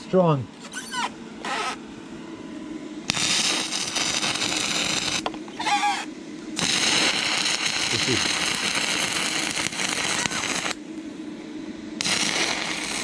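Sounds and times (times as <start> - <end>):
welding arc crackling hiss: 0.0 - 1.8, 3.0 - 11.2, 12.0 - 13.0.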